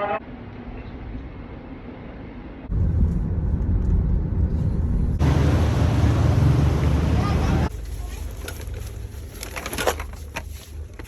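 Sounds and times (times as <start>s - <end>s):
low vehicle rumble: 1.4s - 7.9s.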